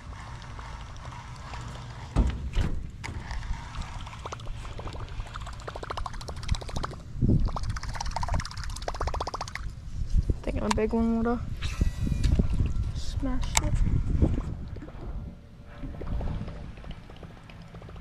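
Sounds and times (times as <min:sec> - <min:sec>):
water sloshing around a boat: 0:00.0 - 0:07.1, 0:12.3 - 0:18.0
wind rumble on microphone: 0:00.0 - 0:18.0.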